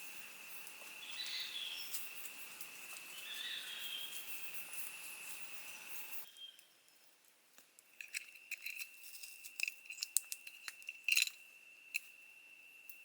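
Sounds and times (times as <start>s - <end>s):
insect high-pitched call: 0.0s - 6.6s.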